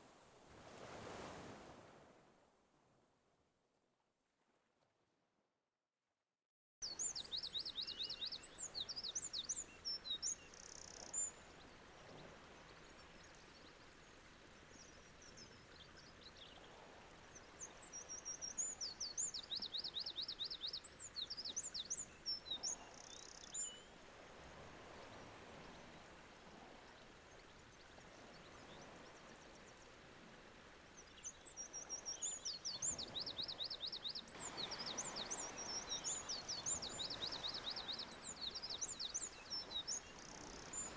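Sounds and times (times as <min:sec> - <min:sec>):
small songbird singing: 0:06.8 - 0:11.7, 0:17.2 - 0:23.9, 0:31.0 - 0:40.9.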